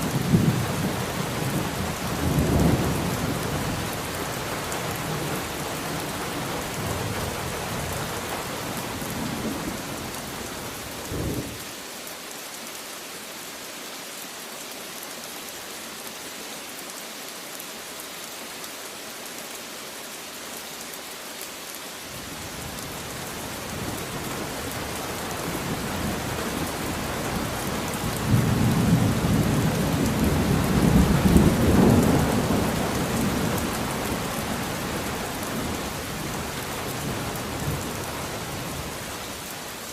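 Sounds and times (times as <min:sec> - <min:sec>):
steady rain falling: 0:00.0 - 0:39.9
rolling thunder: 0:11.0 - 0:11.6.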